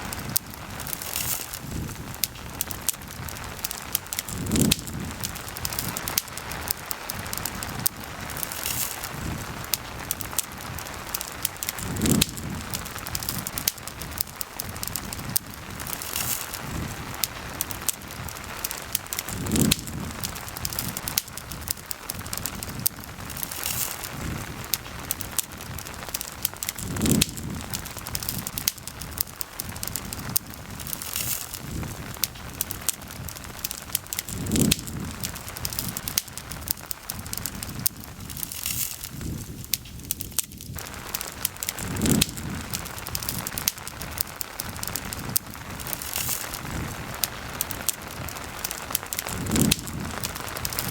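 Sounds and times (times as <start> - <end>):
campfire crackling and popping: 0.0 - 50.9
rain pattering: 0.0 - 50.9.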